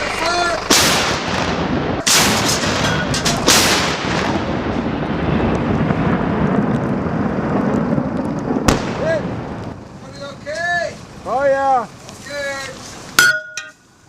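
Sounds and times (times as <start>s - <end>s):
tank gun booms: 0.6s - 4.7s, 8.7s - 9.5s.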